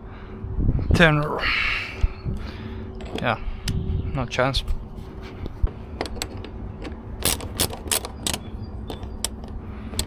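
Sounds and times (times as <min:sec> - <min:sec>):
metallic clicks and knocks: 0:06.0 - 0:10.0.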